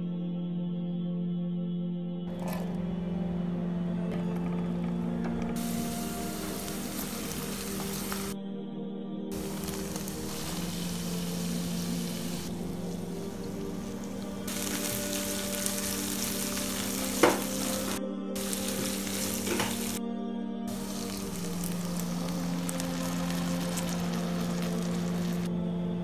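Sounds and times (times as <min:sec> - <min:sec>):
food sizzling in a frying pan: 0:05.6 - 0:08.4, 0:09.4 - 0:20.0, 0:20.7 - 0:25.5
low hum: 0:09.3 - 0:20.0, 0:20.7 - 0:26.0.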